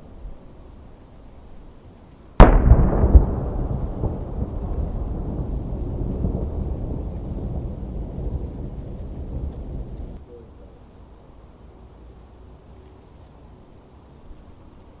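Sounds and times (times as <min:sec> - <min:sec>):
firework shell boom: 0:02.4 - 0:07.0
low rumbling echo: 0:02.4 - 0:10.2.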